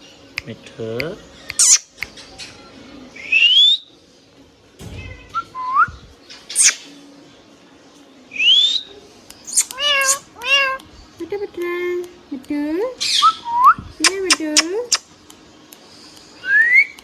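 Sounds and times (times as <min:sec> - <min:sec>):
parakeet whistling and calling: 0:01.5 - 0:01.9, 0:06.5 - 0:06.8, 0:09.5 - 0:10.2.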